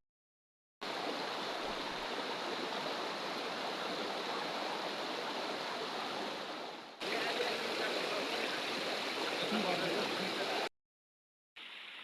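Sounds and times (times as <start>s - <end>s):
river water flowing: 0.8s - 10.7s.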